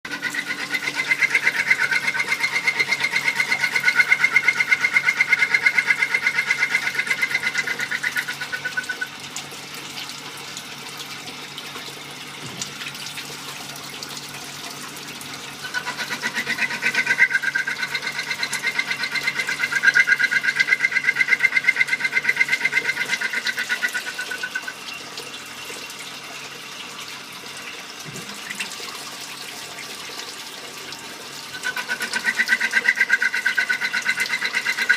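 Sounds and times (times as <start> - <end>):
high fast-pulsing lathe tone: 0.1 - 9.1, 15.6 - 24.8, 31.5 - 34.9
coolant hissing and splashing: 6.8 - 20.5, 21.8 - 34.9.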